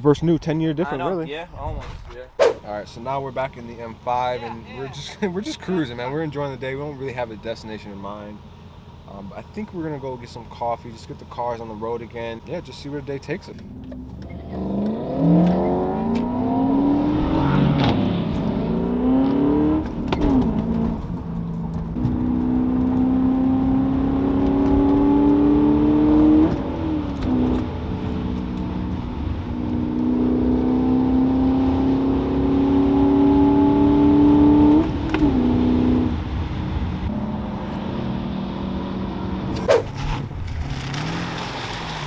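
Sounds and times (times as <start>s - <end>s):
car engine accelerating: 8.4s - 42.0s.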